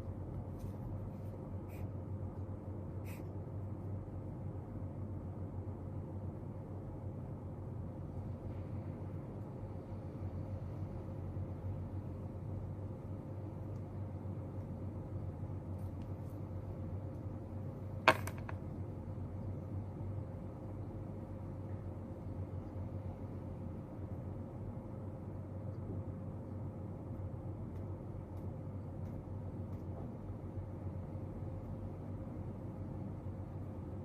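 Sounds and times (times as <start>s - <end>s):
low room hum: 0.0s - 34.0s
object tapped on desk click: 18.0s - 18.6s.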